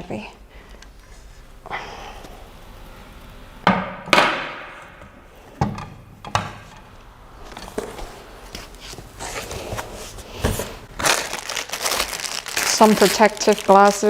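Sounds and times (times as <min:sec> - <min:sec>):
sharp knocks and bumps: 0:03.6 - 0:04.9.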